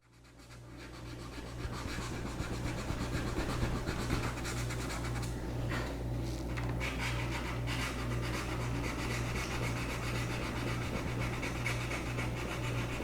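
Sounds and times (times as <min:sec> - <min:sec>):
low electrical hum: 0:00.0 - 0:13.0
sandpaper rubbing on plastic: 0:00.4 - 0:05.2.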